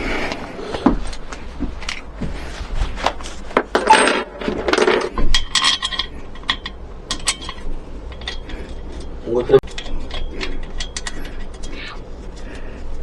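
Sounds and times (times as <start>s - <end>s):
small metallic clinks and rattles: 3.8s - 12.9s.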